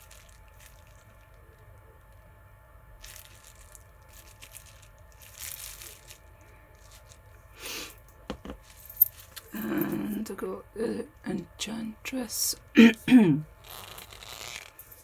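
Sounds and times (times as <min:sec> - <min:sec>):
packaging crinkling: 0:00.0 - 0:02.2, 0:02.9 - 0:09.8, 0:13.6 - 0:15.0.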